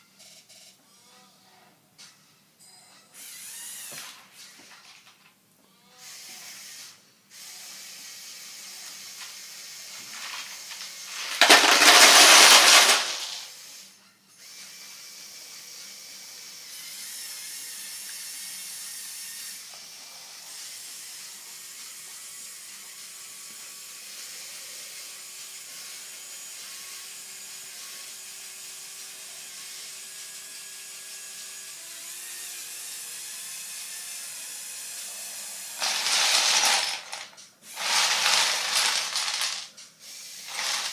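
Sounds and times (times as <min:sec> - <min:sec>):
electric motor and plastic gears whining: 0:03.2 - 0:05.0, 0:06.0 - 0:22.0, 0:30.4 - 0:40.9.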